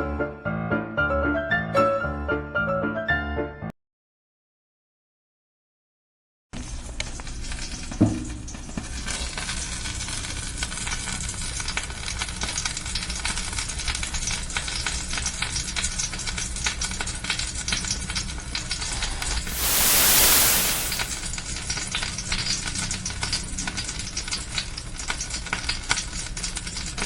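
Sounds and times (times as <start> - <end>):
patties sizzling in hot oil: 6.6 - 21.3, 23.1 - 27.0.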